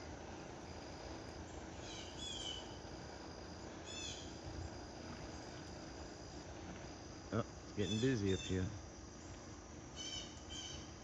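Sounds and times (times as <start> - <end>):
low background noise: 0.0 - 11.0
insect trilling: 3.8 - 4.5, 7.2 - 9.2, 9.9 - 11.0.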